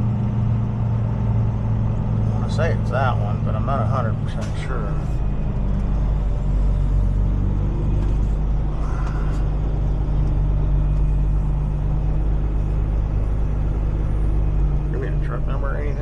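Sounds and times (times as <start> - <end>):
diesel truck engine rumbling: 0.0 - 16.0.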